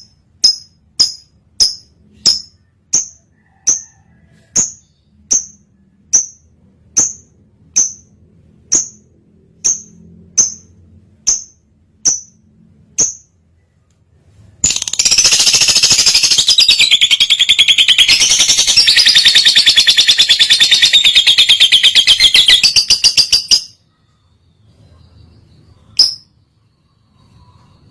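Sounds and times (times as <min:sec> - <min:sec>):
lovebird chirps: 0:00.0 - 0:13.4, 0:14.6 - 0:27.9
lovebird rattling chatter: 0:14.6 - 0:23.7.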